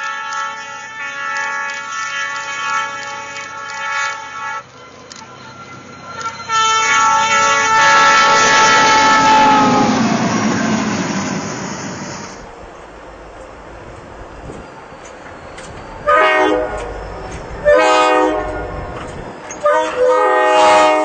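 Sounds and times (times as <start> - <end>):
train horn: 0.0 - 4.8, 6.1 - 11.0, 16.0 - 19.0, 19.6 - 21.0
rush of passing train: 0.0 - 21.0.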